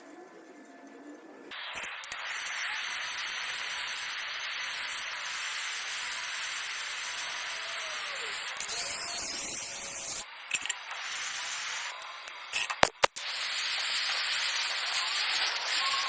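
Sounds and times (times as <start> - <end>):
welding arc hissing: 1.5 - 16.0.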